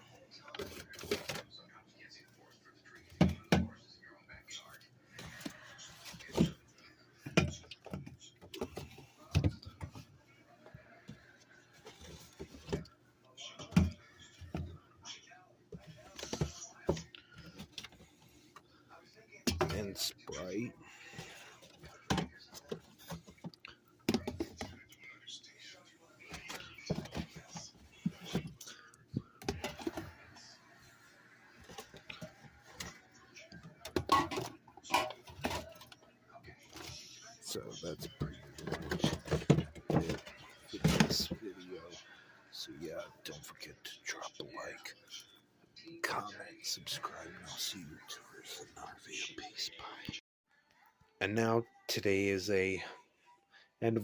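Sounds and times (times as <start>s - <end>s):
bottles and cans clunking: 7.3s - 10.0s, 33.8s - 36.0s, 38.1s - 41.4s.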